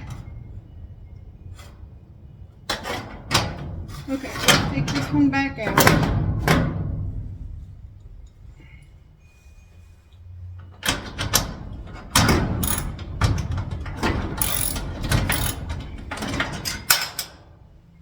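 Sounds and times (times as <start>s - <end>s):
screw clicking and scraping: 12.6s - 12.9s, 14.4s - 15.7s.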